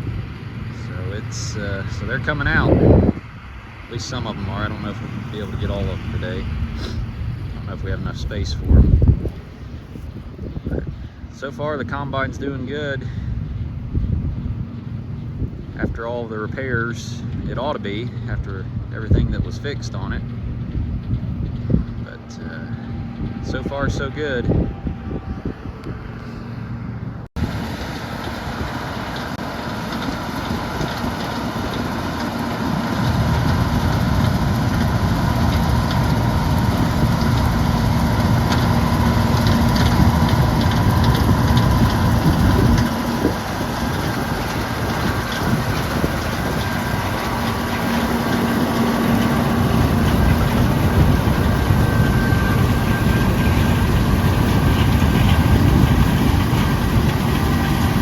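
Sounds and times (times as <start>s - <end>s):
combine harvester engine: 0.0s - 58.0s.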